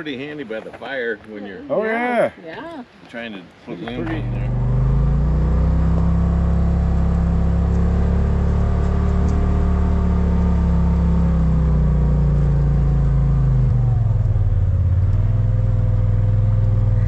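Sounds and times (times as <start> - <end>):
vehicle engine droning: 3.8 - 17.0.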